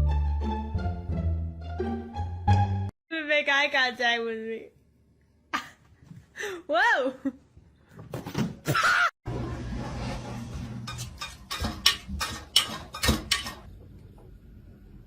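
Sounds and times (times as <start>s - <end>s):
sharp knocks and clatters: 10.7s - 13.7s.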